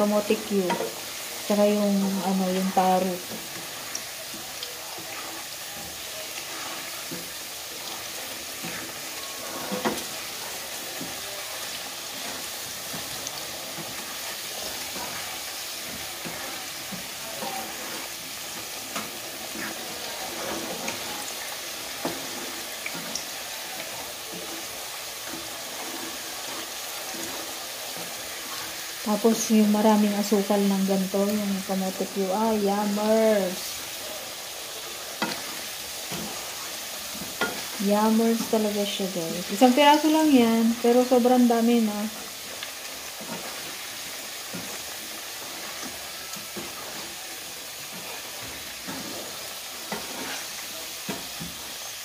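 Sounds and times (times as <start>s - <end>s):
food deep-frying in oil: 0.0s - 52.0s
spatula tapping and scraping wok: 0.6s - 1.2s, 2.0s - 29.1s, 33.7s - 38.7s, 42.2s - 51.8s.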